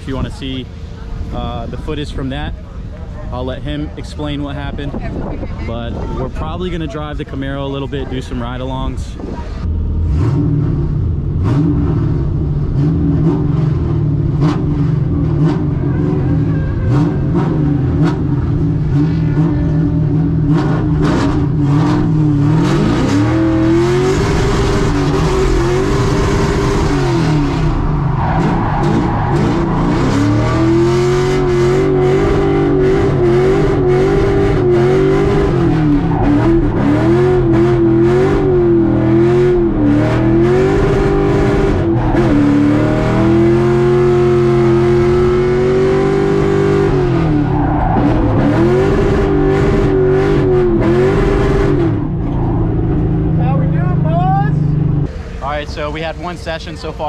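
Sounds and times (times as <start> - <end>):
tire noise: 0.0 - 57.0
car engine revving hard: 9.9 - 55.2.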